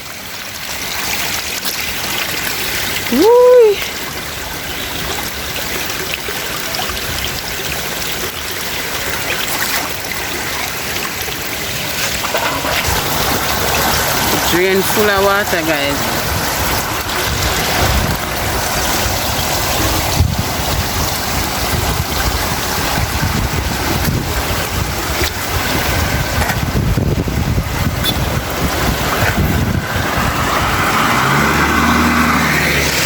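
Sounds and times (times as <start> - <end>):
rain: 0.0 - 33.0
rushing floodwater: 0.0 - 33.0
low engine hum: 12.2 - 33.0
wind buffeting microphone: 15.7 - 33.0.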